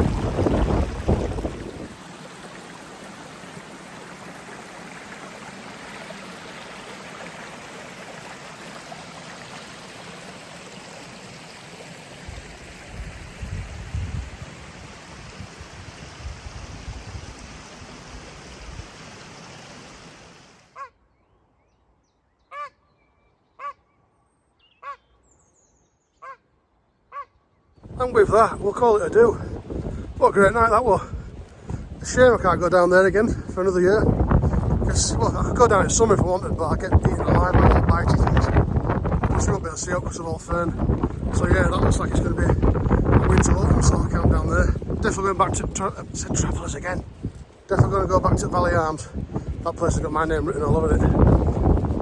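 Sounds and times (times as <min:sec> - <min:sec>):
low rumbling: 0:00.0 - 0:02.0
rushing water: 0:00.0 - 0:20.8, 0:27.8 - 0:52.0.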